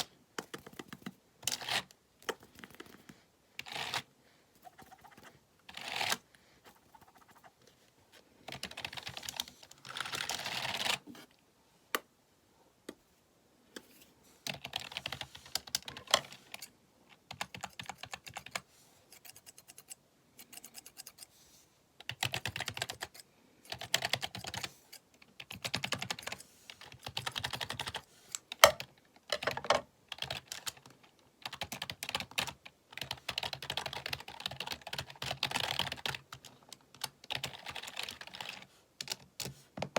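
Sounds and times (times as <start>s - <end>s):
computer keyboard typing: 8.5s - 11.0s, 14.5s - 16.7s, 17.3s - 21.2s, 22.0s - 24.7s, 25.4s - 39.5s.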